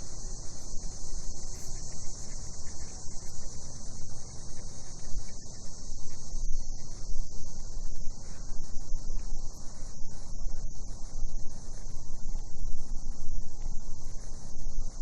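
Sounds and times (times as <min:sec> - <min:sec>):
cicadas buzzing: 0:00.0 - 0:06.9.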